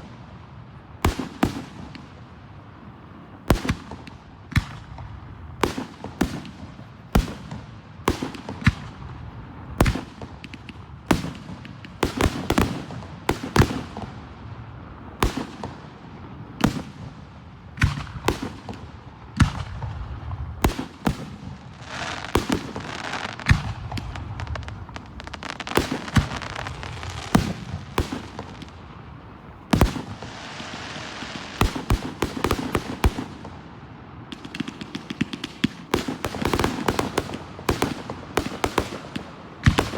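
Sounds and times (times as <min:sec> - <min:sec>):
firework crackling: 0:17.8 - 0:39.9.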